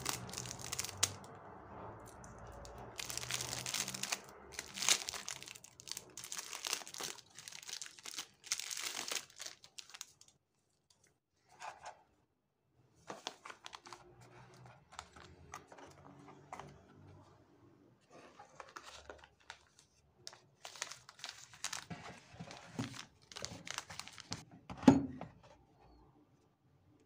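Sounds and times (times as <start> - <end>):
plastic packaging crinkling: 0.0 - 1.3, 2.5 - 10.3, 18.6 - 24.4.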